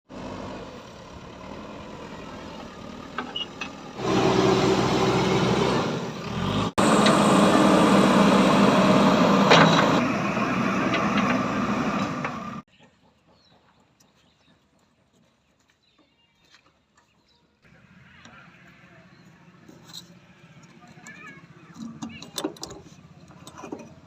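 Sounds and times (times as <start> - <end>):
heavy diesel engine running: 0.1 - 12.7.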